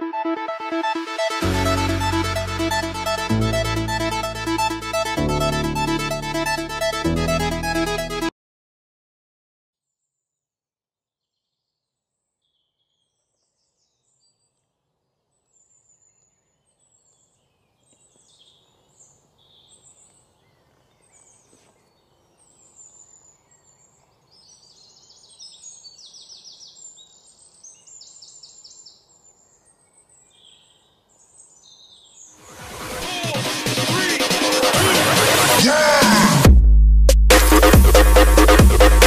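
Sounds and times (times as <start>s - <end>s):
faint outdoor background: 11.1s - 39.0s
birds chirping and singing: 15.6s - 32.4s.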